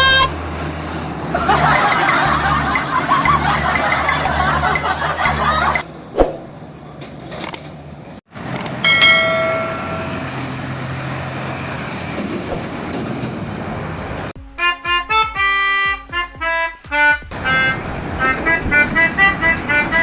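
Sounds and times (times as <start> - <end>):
vehicle horn: 0.0 - 0.4, 14.6 - 20.0
road noise: 0.0 - 14.4, 17.2 - 20.0
melody of short notes: 8.8 - 10.7.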